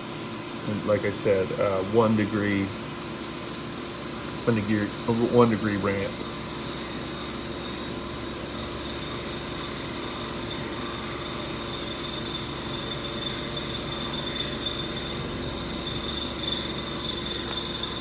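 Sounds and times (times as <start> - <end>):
milling machine cutting metal squeaky: 4.8 - 18.0.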